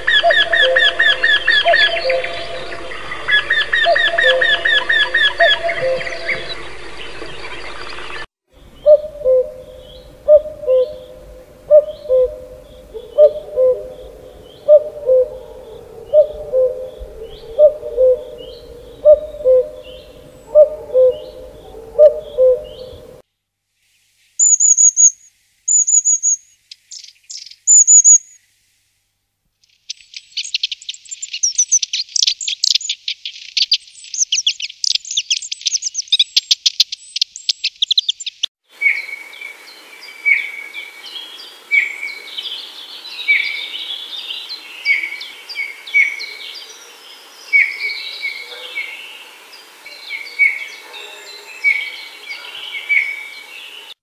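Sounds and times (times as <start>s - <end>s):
chorus of birds: 0.0s - 23.2s, 25.7s - 28.4s, 29.6s - 54.0s
fast chirping bird song: 0.0s - 23.2s, 24.4s - 28.4s, 29.7s - 38.5s
high thin whistled bird notes: 24.4s - 28.5s.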